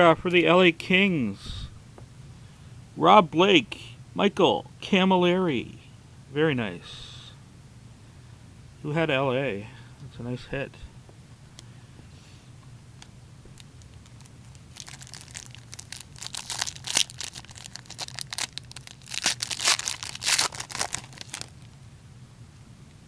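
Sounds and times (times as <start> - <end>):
card pack wrapper tearing and rustling: 13.8 - 21.7.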